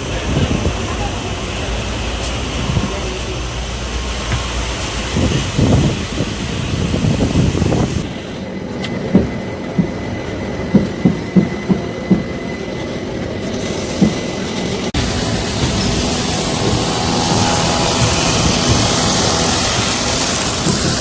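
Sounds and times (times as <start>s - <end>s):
train rumble: 0.0s - 21.0s
wheels clacking over rail joints: 7.4s - 21.0s.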